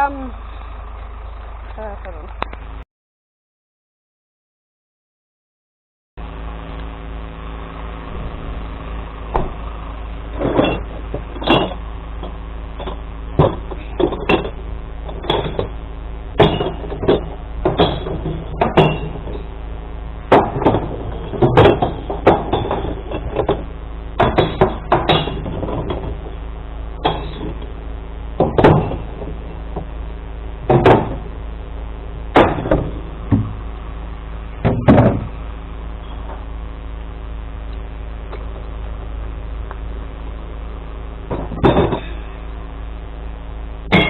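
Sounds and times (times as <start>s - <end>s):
truck engine idling: 0.0s - 2.8s, 6.2s - 44.0s
irregular knocks and bangs: 10.4s - 19.6s, 20.3s - 26.4s, 27.0s - 27.7s, 28.4s - 30.0s, 30.6s - 31.4s, 32.3s - 33.7s, 34.6s - 35.4s, 41.3s - 42.2s.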